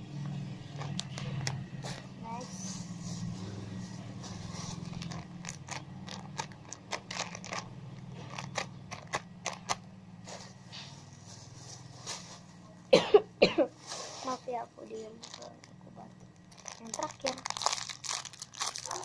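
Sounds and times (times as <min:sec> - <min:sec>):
objects clicking and crackling: 0:00.7 - 0:02.1, 0:04.7 - 0:09.8.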